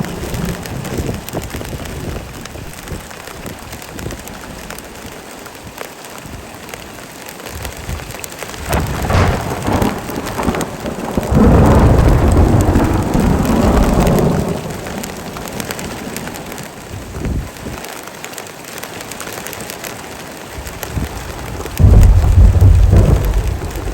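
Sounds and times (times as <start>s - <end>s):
rolling thunder rumble: 0.0s - 4.2s, 7.7s - 17.6s, 20.6s - 23.9s
heavy rain falling: 0.0s - 23.9s.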